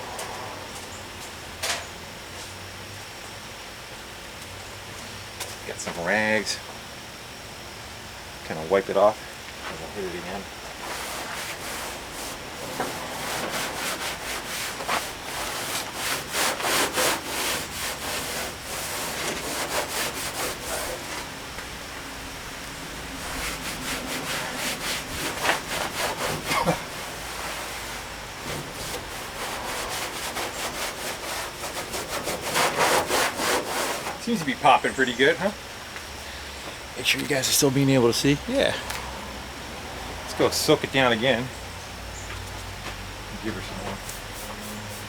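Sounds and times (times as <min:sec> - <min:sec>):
rag scrubbing metal panel: 0:10.8 - 0:21.7, 0:22.8 - 0:34.8.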